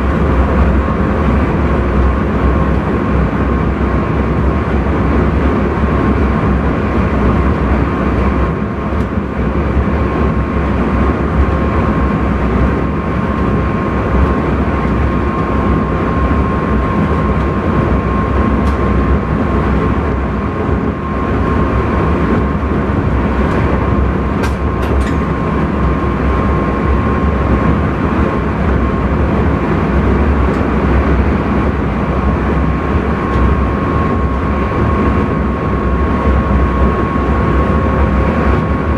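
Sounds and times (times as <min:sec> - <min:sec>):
constant high hum: 0:00.0 - 0:38.9
train wheels rumbling: 0:06.6 - 0:38.9.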